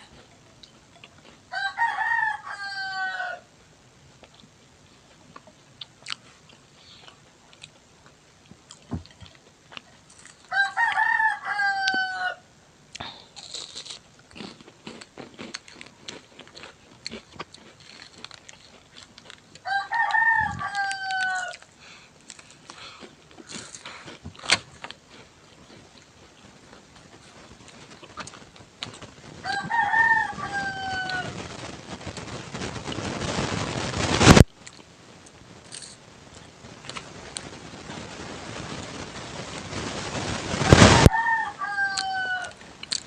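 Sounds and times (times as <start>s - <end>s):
rooster crowing: 1.5s - 3.5s, 10.5s - 12.5s, 19.6s - 21.6s, 29.4s - 31.4s, 40.7s - 42.6s
clicks and smacks of eating: 5.3s - 11.0s, 12.9s - 29.7s, 42.0s - 43.0s.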